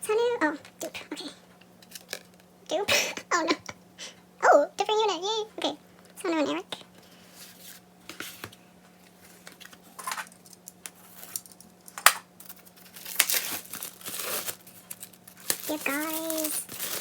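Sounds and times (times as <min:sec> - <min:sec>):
packaging crinkling: 0:12.4 - 0:17.0.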